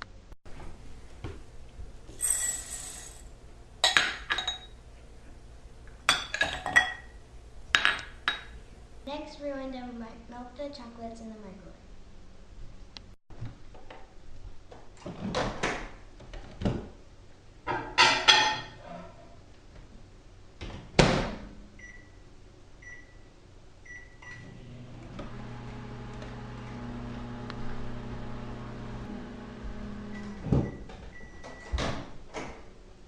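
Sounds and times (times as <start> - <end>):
microwave oven humming: 21.7 - 31.8.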